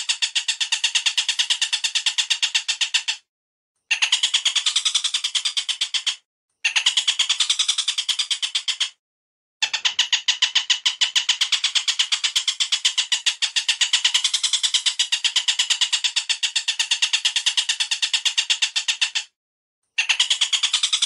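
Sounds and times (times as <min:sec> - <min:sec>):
bird call chatter: 0:03.9 - 0:09.0, 0:09.6 - 0:19.4, 0:20.0 - 0:21.0.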